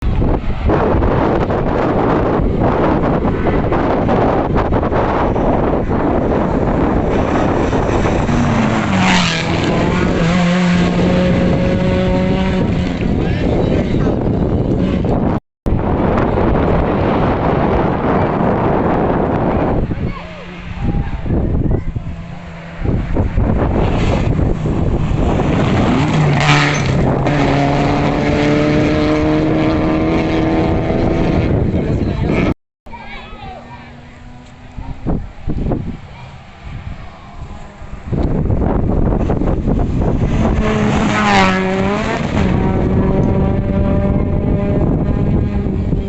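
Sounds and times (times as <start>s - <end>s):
wind buffeting microphone: 0.0s - 46.0s
rally car engine passing: 0.1s - 15.4s, 16.0s - 32.5s, 33.6s - 46.0s.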